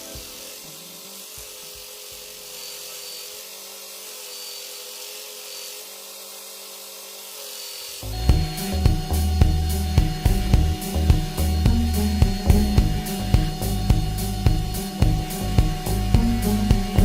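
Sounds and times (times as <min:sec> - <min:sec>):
even hiss: 0:00.0 - 0:17.0
tool rubbing material: 0:00.0 - 0:17.0
steady hum: 0:08.0 - 0:17.0.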